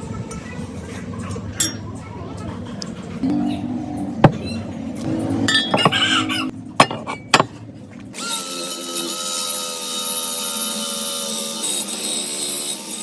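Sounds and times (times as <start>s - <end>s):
power tool grinding metal: 8.2s - 13.0s.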